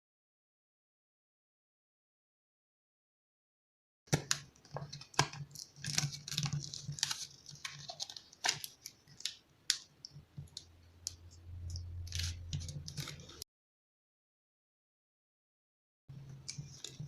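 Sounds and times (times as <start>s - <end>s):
low hum: 10.6s - 13.4s
paper being creased by hand: 12.0s - 13.4s.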